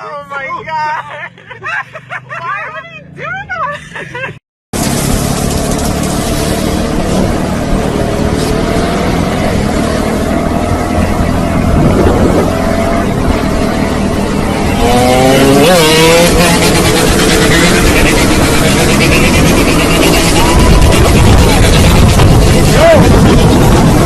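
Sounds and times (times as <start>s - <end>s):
vehicle engines running: 0.0s - 24.0s
engine revving up: 4.8s - 24.0s
noisy rush: 4.8s - 24.0s.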